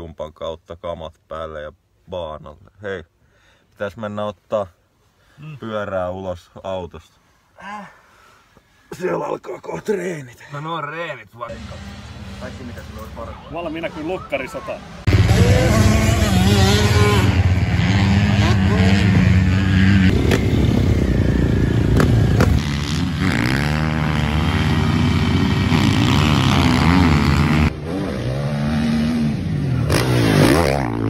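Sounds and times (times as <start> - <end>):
motocross bike engines revving: 11.5 - 31.0.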